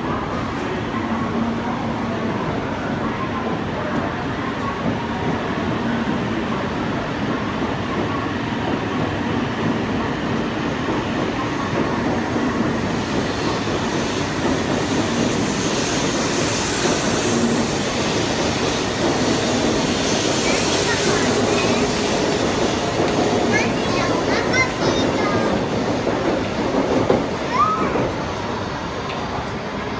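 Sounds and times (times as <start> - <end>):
train hiss: 11.6 - 29.9.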